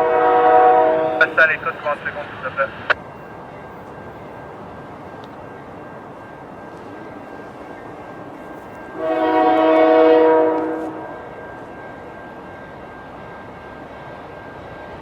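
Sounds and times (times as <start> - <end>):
train air horn blast: 0.0 - 1.4, 8.9 - 11.2.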